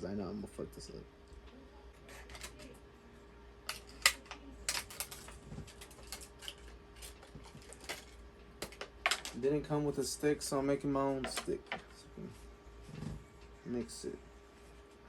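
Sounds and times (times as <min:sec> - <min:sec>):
faint steady hum: 0:00.0 - 0:15.0
small plastic items clicking and tapping: 0:03.7 - 0:09.4.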